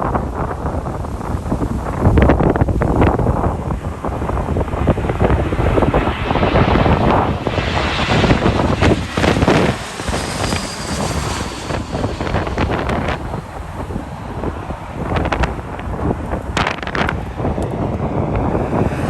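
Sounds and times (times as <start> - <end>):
jet airliner passing: 0.0 - 19.0
wind buffeting microphone: 0.0 - 19.0.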